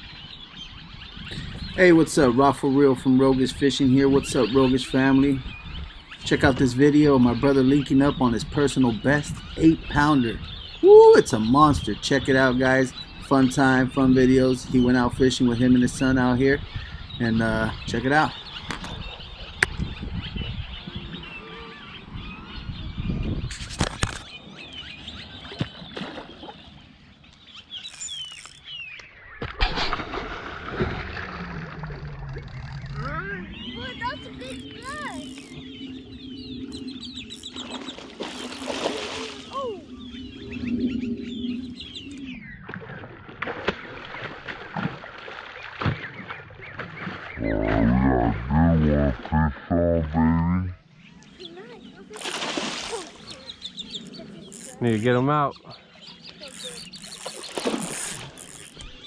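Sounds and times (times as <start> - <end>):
small birds chirping: 0.0 - 29.4, 32.4 - 42.6, 45.8 - 59.0
water splashing and sloshing: 23.5 - 36.1, 36.7 - 40.1, 41.9 - 48.5, 52.0 - 55.1, 56.3 - 59.0.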